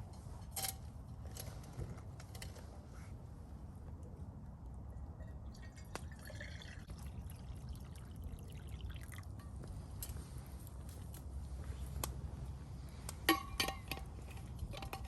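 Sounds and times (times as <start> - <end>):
liquid pouring: 5.4 - 9.4.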